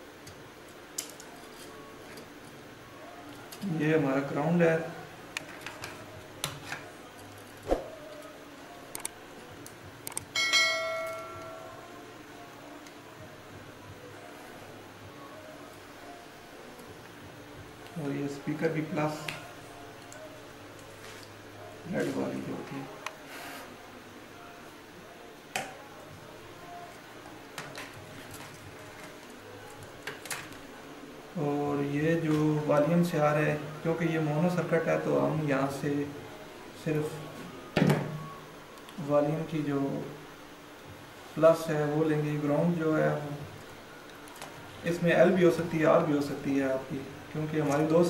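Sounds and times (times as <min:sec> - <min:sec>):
ringing metallic strike: 0:10.4 - 0:11.7.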